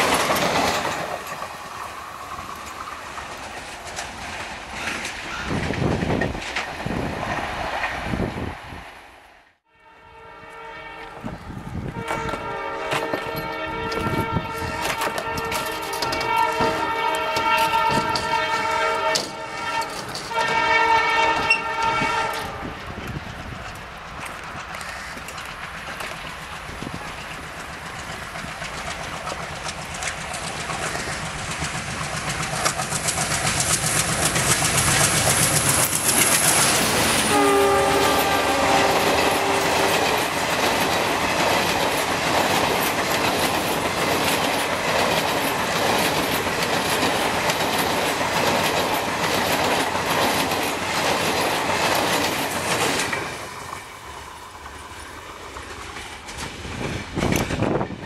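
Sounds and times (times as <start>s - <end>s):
coaches clattering over rail joints: 0.0s - 7.9s, 12.0s - 20.7s, 21.3s - 53.9s, 54.6s - 58.0s
diesel train passing: 0.0s - 58.0s
train horn: 9.7s - 22.9s, 37.2s - 40.3s.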